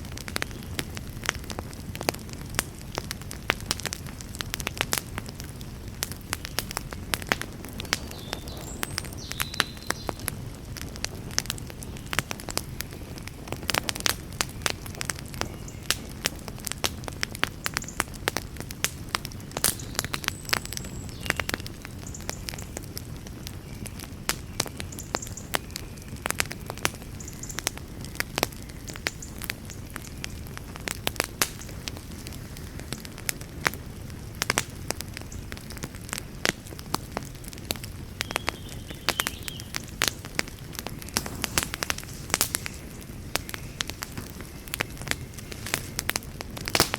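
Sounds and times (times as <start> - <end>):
wood fire crackling and popping: 0.0 - 46.9
brief hiss from fire: 41.2 - 42.8.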